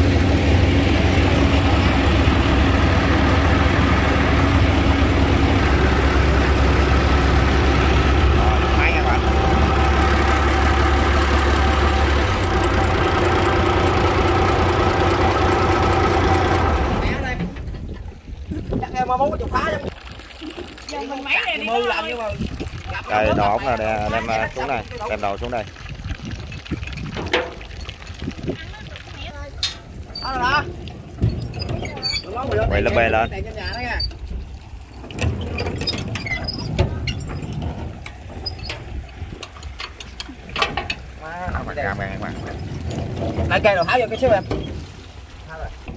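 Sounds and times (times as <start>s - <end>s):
boat engine driving sand pump: 0.0s - 45.9s
metal pipe clanks and knocks: 27.1s - 27.7s.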